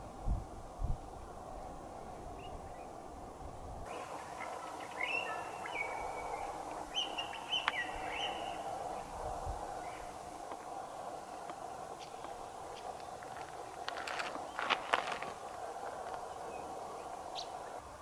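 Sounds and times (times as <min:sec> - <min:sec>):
steady background hum: 0:00.0 - 0:18.0
bird singing whistled phrases: 0:04.9 - 0:08.6.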